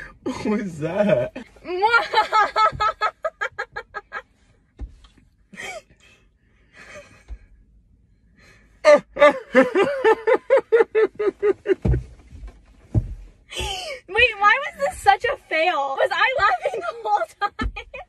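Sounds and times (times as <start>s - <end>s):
people laughing: 1.7s - 4.2s, 9.2s - 11.9s, 16.2s - 18.0s
woman laughing loudly: 1.8s - 4.2s, 8.9s - 11.8s, 16.3s - 18.0s.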